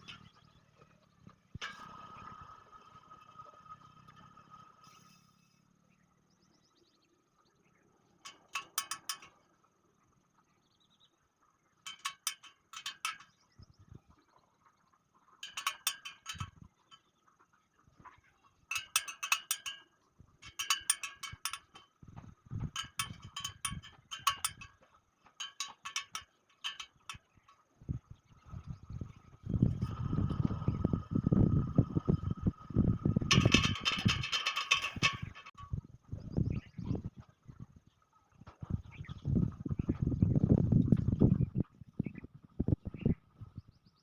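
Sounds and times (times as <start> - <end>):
wire spokes clinking and rattling: 8.2 - 9.6, 11.9 - 13.5, 15.4 - 17.1, 18.7 - 28.6, 29.4 - 35.8.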